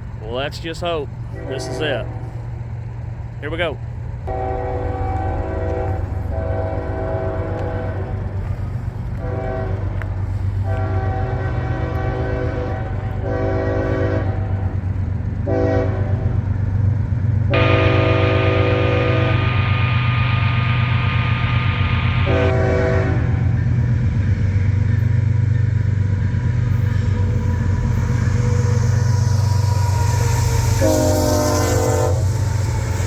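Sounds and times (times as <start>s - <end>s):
train rumbling: 0.0s - 33.0s
locomotive air horn blasts: 1.3s - 2.4s, 4.3s - 8.2s, 9.2s - 14.7s, 15.4s - 16.4s, 17.5s - 19.9s, 22.2s - 23.6s, 29.8s - 32.4s.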